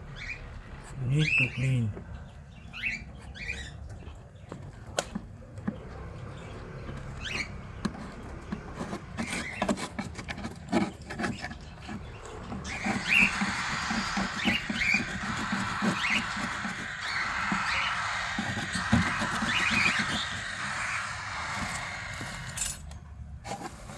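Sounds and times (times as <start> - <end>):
birds scratching and pecking: 3.0 - 22.9
bird chirps: 11.9 - 22.8.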